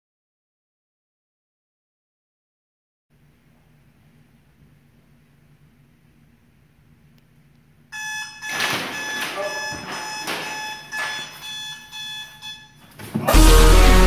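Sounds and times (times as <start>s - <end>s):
phone alarm ringing: 8.0s - 12.9s.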